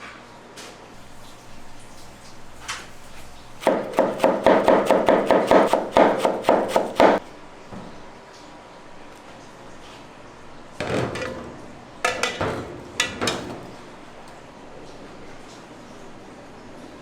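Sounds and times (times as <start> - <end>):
knife chopping on wooden board: 3.6 - 7.2.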